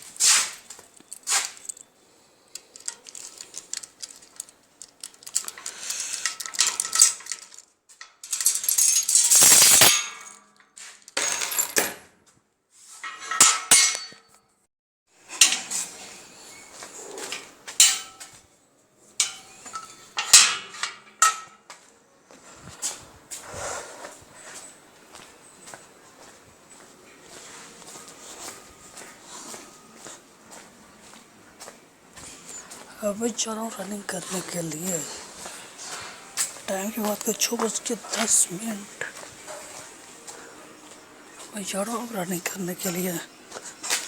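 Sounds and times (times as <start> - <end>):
small hard objects clinking: 2.5 - 10.3.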